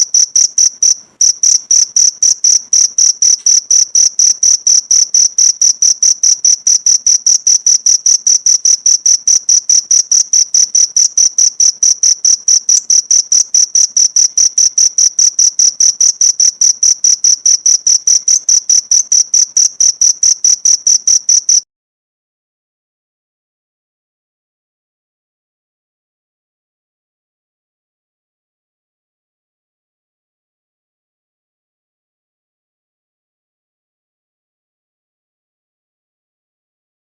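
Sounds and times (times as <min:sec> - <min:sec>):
cricket chirping: 0:00.0 - 0:21.6.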